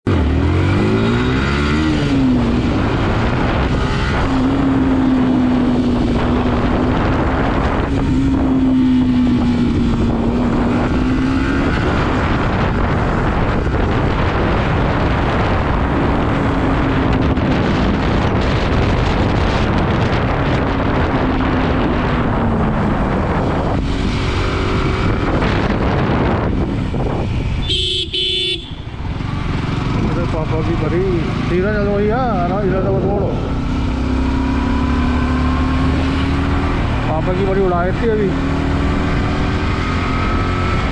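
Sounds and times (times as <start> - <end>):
motorcycle engine at speed: 0.0 - 40.9
wind and road noise: 0.0 - 40.9
horn honking: 27.6 - 29.0.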